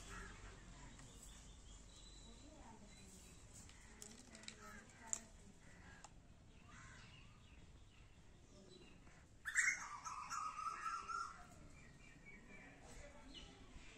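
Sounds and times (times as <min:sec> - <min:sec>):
faint background noise: 0:00.0 - 0:13.9
bird calling: 0:09.4 - 0:11.5.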